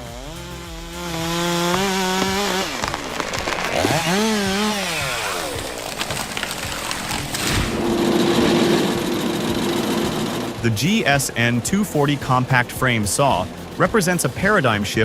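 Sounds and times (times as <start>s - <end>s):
chainsaw cutting tree: 0.0s - 10.6s.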